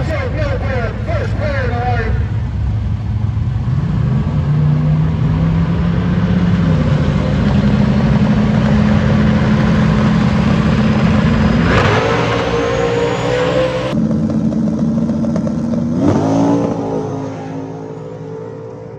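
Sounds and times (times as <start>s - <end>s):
race car engine revving: 2.3s - 14.0s.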